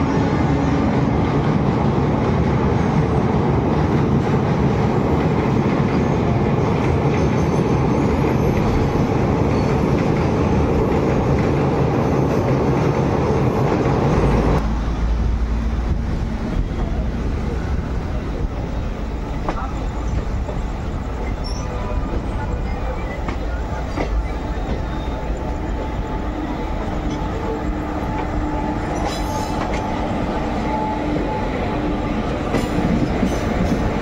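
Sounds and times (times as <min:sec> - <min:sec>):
train wheels rumbling and rattling: 0:00.0 - 0:34.0.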